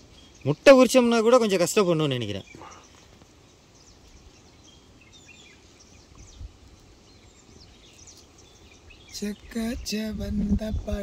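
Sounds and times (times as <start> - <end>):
faint bird chirps: 0.0 - 11.0
quiet outdoor background noise: 0.0 - 11.0.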